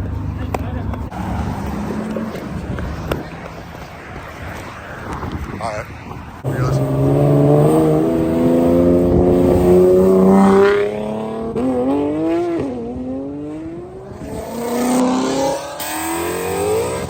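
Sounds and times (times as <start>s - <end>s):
car accelerating with loud exhaust: 0.0s - 17.0s.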